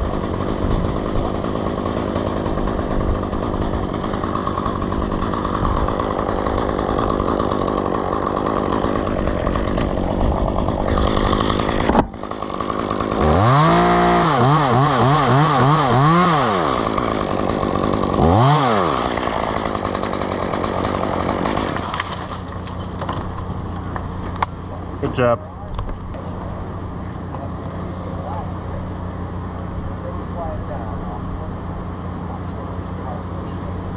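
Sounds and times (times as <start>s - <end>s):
chainsaw running and revving: 0.0s - 25.1s.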